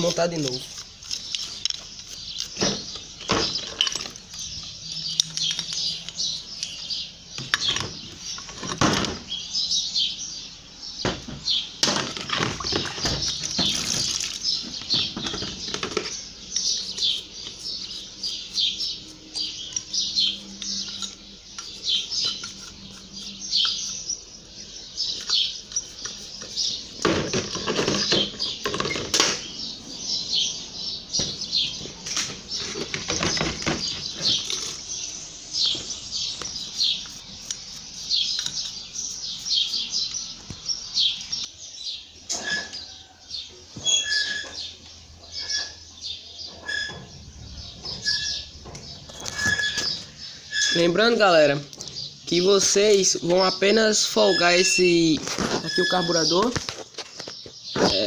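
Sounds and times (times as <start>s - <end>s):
small birds chirping: 0.0s - 58.0s
knocks and scrapes of handled metal part: 0.6s - 9.3s, 11.1s - 24.2s, 25.0s - 29.4s, 31.2s - 34.8s, 47.8s - 50.9s.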